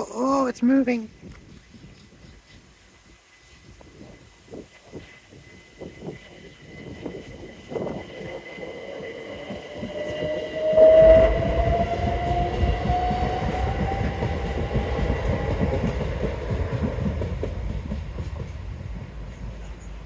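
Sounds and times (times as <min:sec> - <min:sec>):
train rumble and wheel clatter: 0:00.0 - 0:20.0
train whine rising in pitch: 0:04.8 - 0:18.1.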